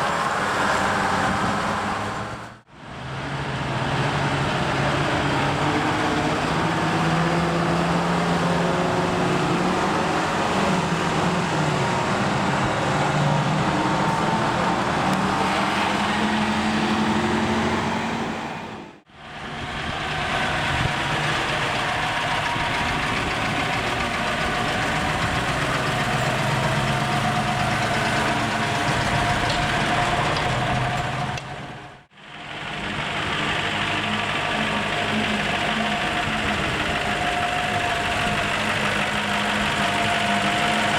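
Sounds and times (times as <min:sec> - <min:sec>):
truck diesel engines idling: 0:00.0 - 0:40.9.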